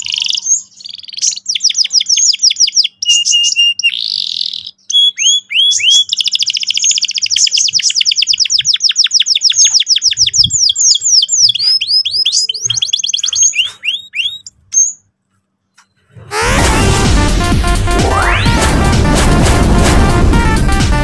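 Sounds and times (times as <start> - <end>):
canary singing a trill: 0.0 - 15.2.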